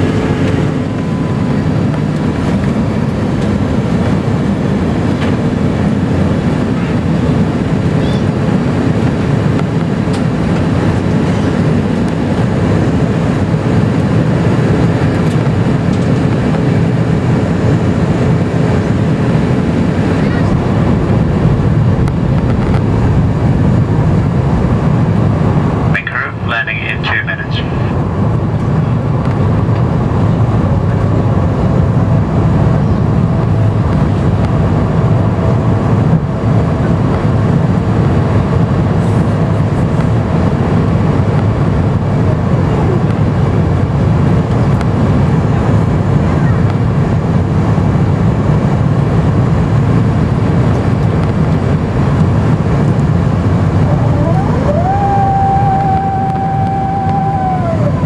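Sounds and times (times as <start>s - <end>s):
airplane cabin engine rush: 0.0s - 58.0s
mechanical whine: 52.5s - 58.0s.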